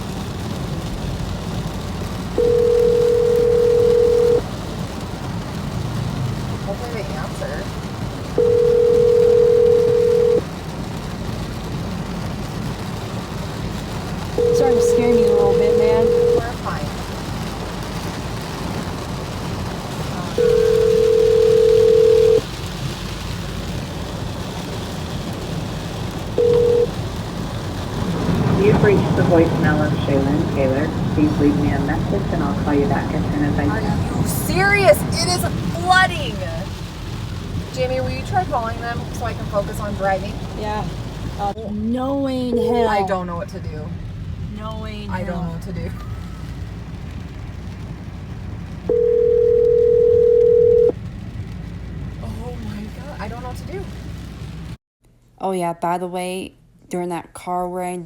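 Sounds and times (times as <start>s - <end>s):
car cabin road noise: 0.0s - 54.8s
low steady rumble: 0.0s - 58.0s
phone ringback tone: 2.4s - 4.4s, 8.4s - 10.4s, 14.4s - 16.6s, 20.4s - 22.4s, 26.4s - 26.9s, 48.9s - 50.9s.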